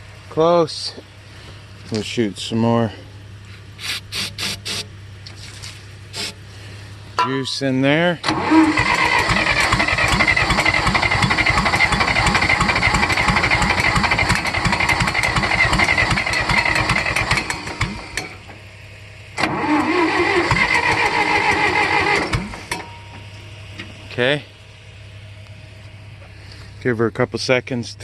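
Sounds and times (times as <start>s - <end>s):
tractor engine cranking: 3.8s - 6.4s, 7.2s - 18.6s, 19.4s - 24.4s.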